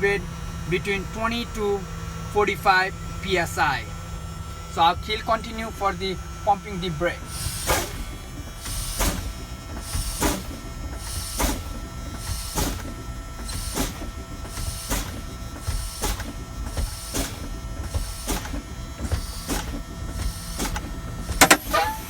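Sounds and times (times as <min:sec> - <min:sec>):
air brakes hissing: 0:07.2 - 0:22.0.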